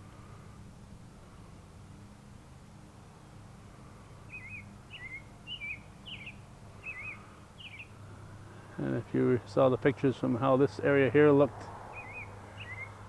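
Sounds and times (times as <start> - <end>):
songbird warbling chirps: 4.3 - 8.0, 11.9 - 13.0.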